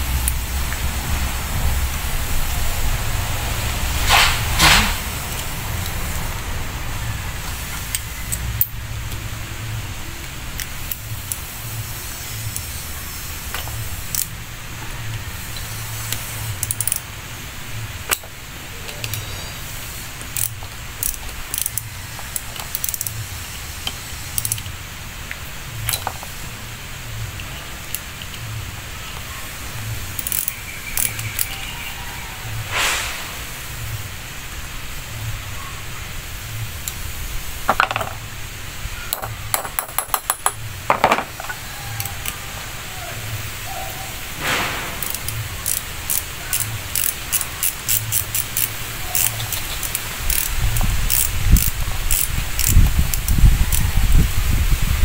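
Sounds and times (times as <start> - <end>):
steady low rumble: 0.0 - 22.5
short loud hisses: 3.8 - 5.3, 32.5 - 34.1, 44.2 - 45.2
metallic clicks of tools and parts: 7.5 - 9.2, 13.5 - 14.4, 15.1 - 17.1, 18.1 - 18.3, 18.9 - 19.4, 20.2 - 23.2, 23.8 - 24.8, 25.8 - 26.3, 30.1 - 31.6, 39.1 - 42.4, 45.0 - 53.9.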